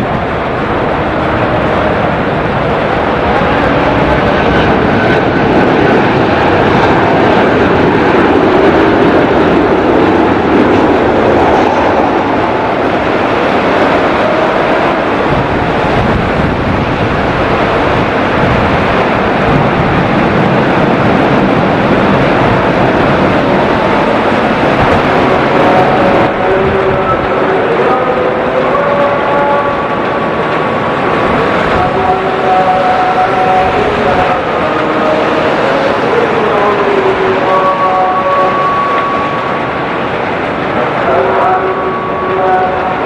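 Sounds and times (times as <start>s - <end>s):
jet engines running: 0.0s - 28.4s.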